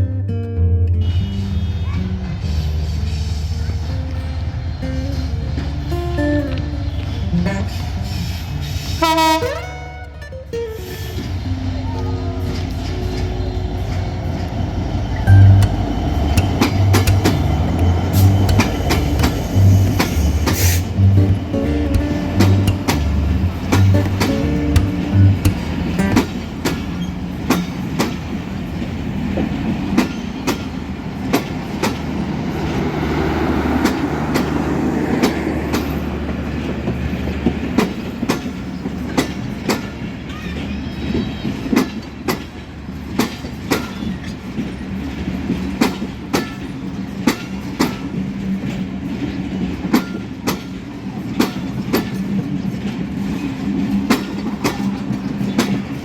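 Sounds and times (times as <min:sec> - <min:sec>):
diesel locomotive drone: 0:00.0 - 0:56.0
train wheels clacking on rails: 0:11.0 - 0:56.0.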